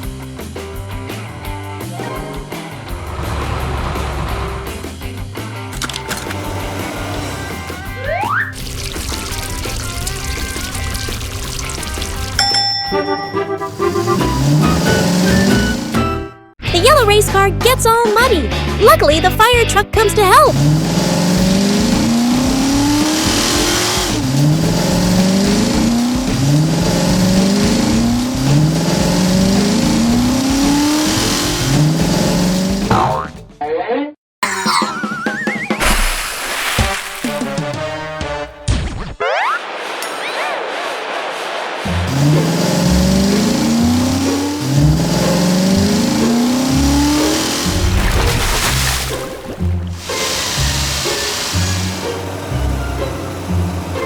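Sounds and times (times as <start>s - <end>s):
race car engine accelerating: 2.0s - 5.3s, 13.7s - 16.1s, 20.3s - 32.9s, 39.9s - 54.0s.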